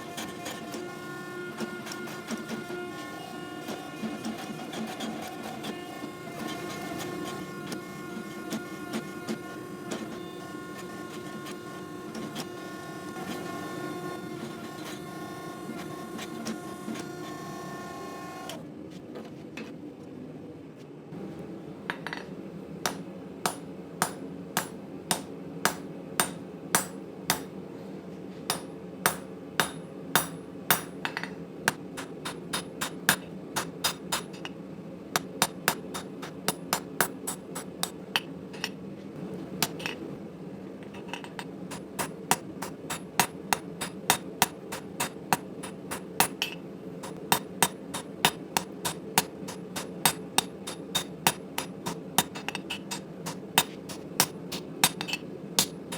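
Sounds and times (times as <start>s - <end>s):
hammer striking steel on anvil: 22.9s - 27.6s, 28.5s - 34.4s, 41.7s - 55.9s.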